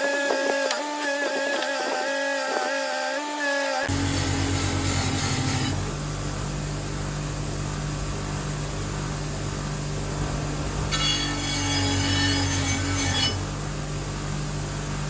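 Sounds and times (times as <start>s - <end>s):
motor humming: 3.9s - 15.0s.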